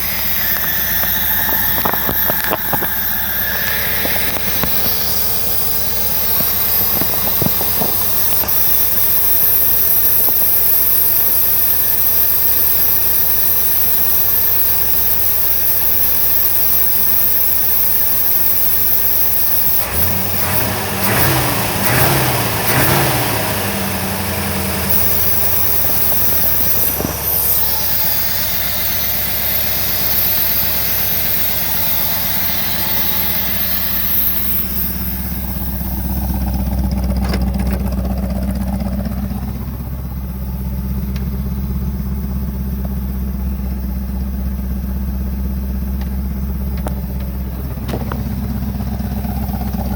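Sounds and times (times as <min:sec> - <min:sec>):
truck engine idling: 0:00.0 - 0:49.9.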